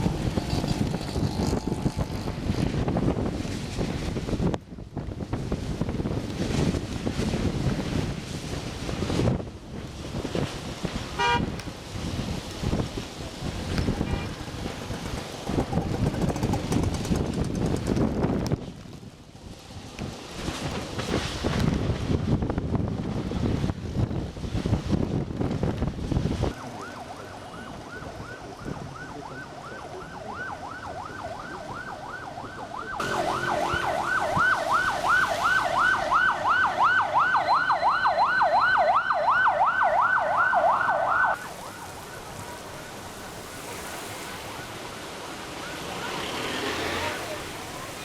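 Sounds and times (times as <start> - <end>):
wind buffeting microphone: 0.0 - 45.2
emergency siren yelping: 26.5 - 43.2.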